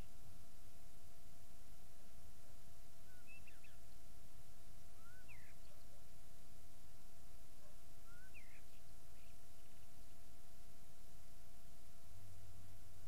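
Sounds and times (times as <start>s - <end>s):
faint steady hum: 0.0s - 13.0s
bird calling: 5.0s - 5.9s, 7.6s - 9.9s.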